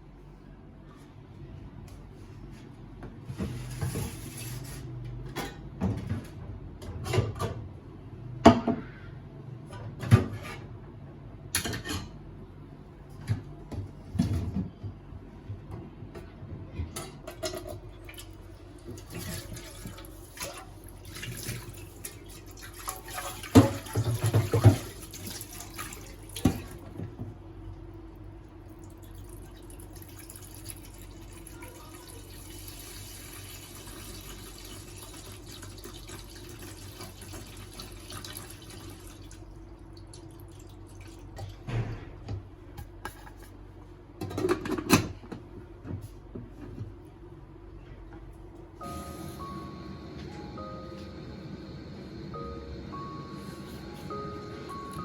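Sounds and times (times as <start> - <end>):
water running from a tap: 18.9 - 26.9, 28.8 - 41.3.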